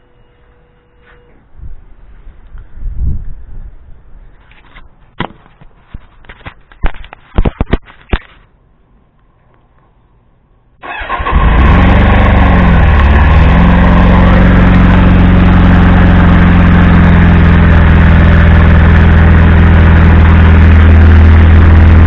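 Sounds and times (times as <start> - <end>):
motorcycle engine starting and idling: 10.8 - 22.0.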